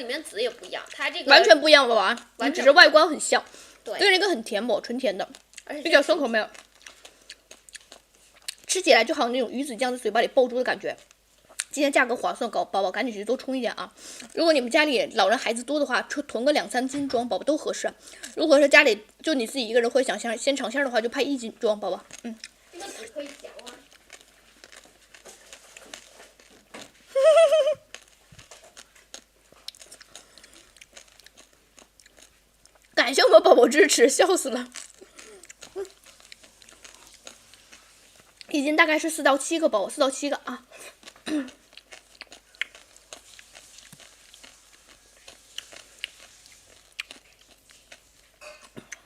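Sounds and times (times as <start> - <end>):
person chewing seeds: 5.2 - 5.7, 6.5 - 8.8, 22.0 - 27.2, 27.8 - 33.0, 34.4 - 38.6, 40.7 - 49.0.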